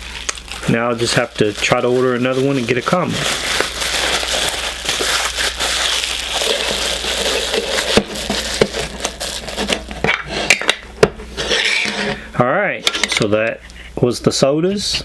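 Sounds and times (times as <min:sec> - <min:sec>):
packaging being crumpled: 0:00.0 - 0:10.0.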